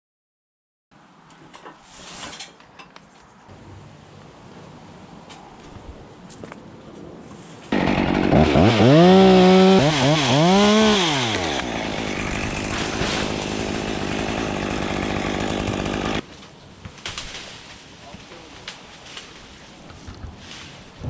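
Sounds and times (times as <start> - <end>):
chainsaw revving: 7.7 - 16.2.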